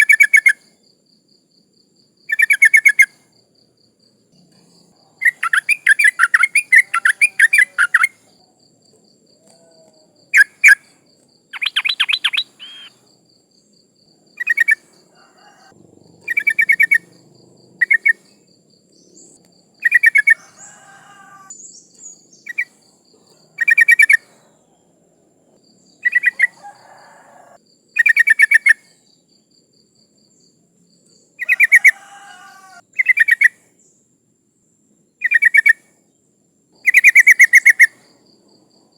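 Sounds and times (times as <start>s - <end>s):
bird bubbly chattering calls: 11.6s - 12.9s.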